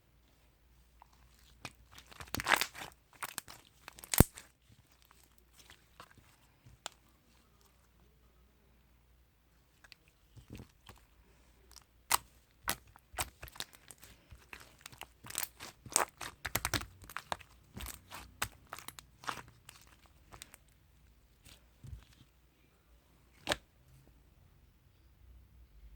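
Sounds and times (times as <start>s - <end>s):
slime squeezed by hand: 1.2s - 6.3s.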